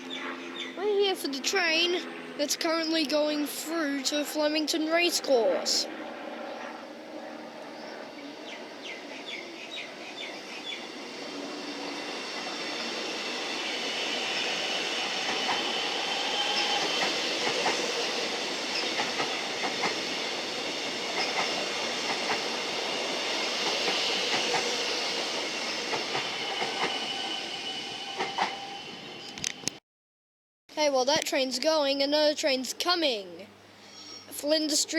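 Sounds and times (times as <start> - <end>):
electric train passing: 0.0 - 29.8
wheel squeal: 8.4 - 29.6.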